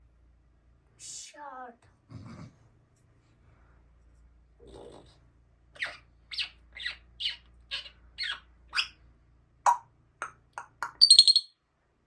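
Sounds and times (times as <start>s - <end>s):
parrot calls: 5.7s - 9.0s, 10.8s - 11.5s.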